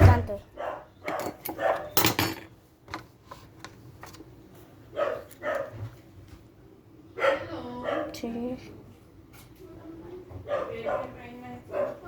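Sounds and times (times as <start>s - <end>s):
dog barking: 0.6s - 2.0s, 4.9s - 5.8s, 7.2s - 8.2s, 10.4s - 12.0s.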